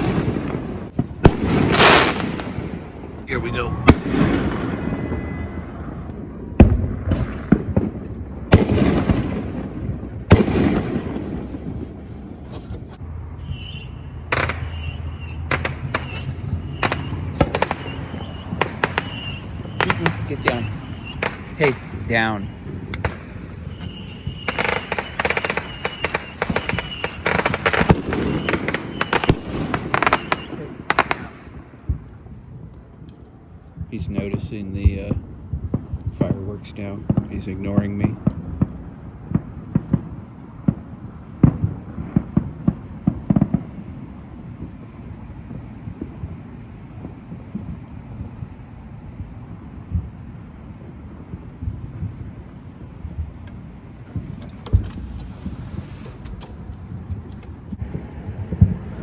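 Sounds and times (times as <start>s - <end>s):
fireworks booming: 0.0s - 32.3s, 33.7s - 48.6s, 49.2s - 59.0s
fireworks popping: 6.6s - 31.3s, 53.2s - 59.0s.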